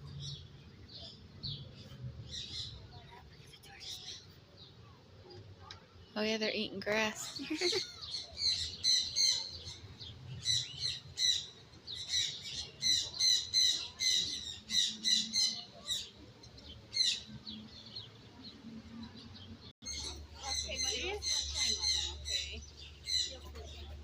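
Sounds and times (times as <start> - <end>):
bird chirping: 7.0 - 23.9.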